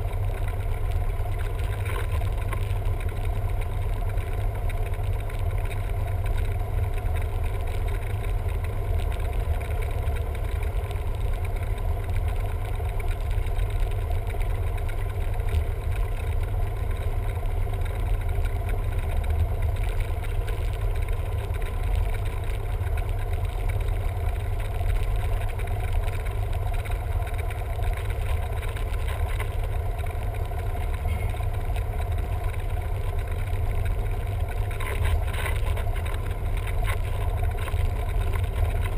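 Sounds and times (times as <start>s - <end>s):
light aircraft engine drone: 0.0s - 38.9s.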